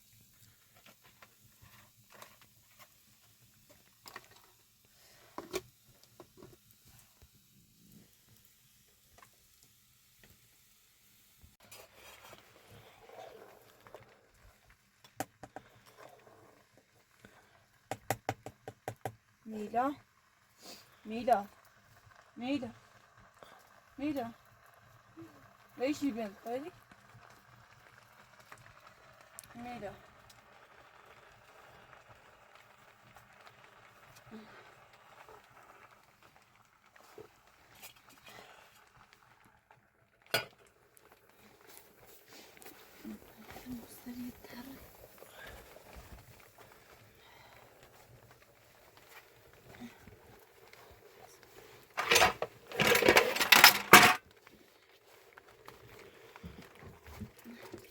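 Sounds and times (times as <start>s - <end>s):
faint hiss: 0.0s - 15.2s, 41.3s - 52.0s.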